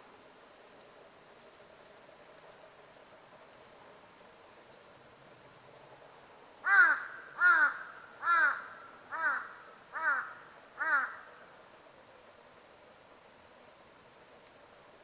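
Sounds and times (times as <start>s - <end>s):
crow cawing: 6.6s - 11.4s.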